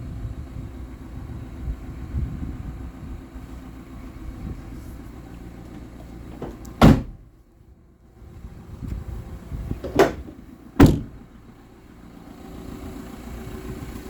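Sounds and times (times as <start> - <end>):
diesel van engine rumble: 0.0 - 14.0
loud slam: 10.0 - 11.2.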